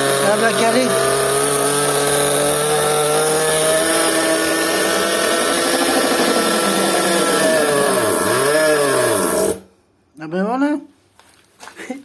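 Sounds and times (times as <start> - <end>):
small nitro engine running: 0.0 - 9.6.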